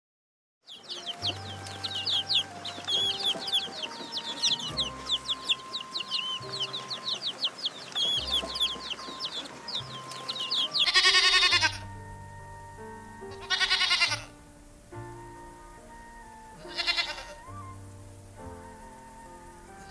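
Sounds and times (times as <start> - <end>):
small birds chirping: 0.7 - 19.9
soft background music: 0.7 - 19.9
loud animal calls: 0.8 - 12.1, 12.7 - 14.4, 15.6 - 17.8.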